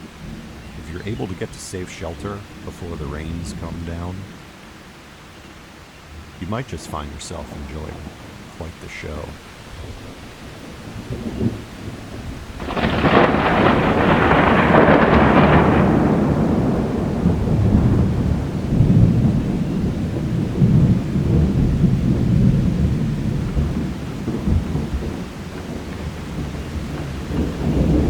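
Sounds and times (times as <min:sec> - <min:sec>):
thunderclap and rolling thunder: 0:06.1 - 0:28.0.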